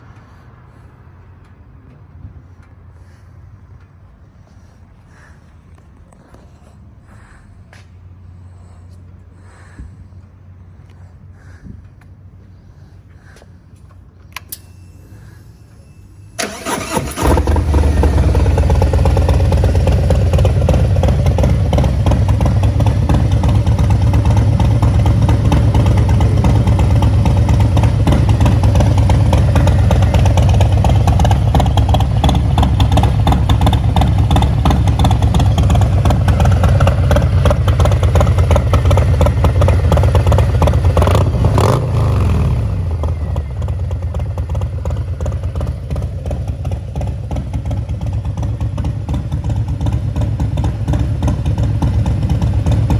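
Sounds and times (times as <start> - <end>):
starter motor cranking: 16.4 - 19.6
motorcycle engine idling loud: 16.4 - 52.9.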